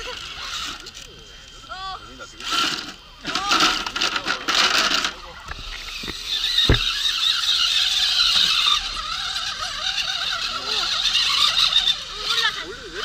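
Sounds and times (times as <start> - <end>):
electric motor and gearbox whining: 2.3 - 13.0
knocks: 6.7 - 6.9.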